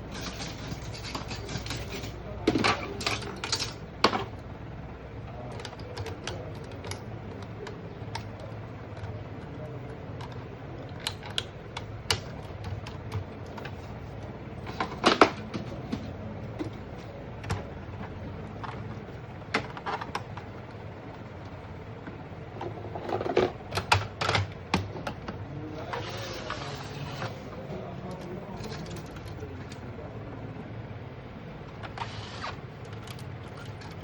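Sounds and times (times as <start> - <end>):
printer clicks and knocks: 23.2 - 25.4.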